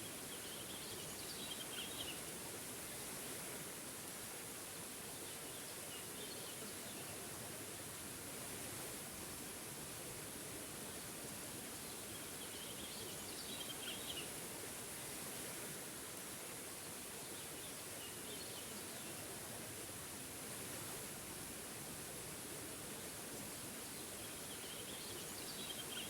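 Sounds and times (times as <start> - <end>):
songbird chirping: 24.0 - 26.0.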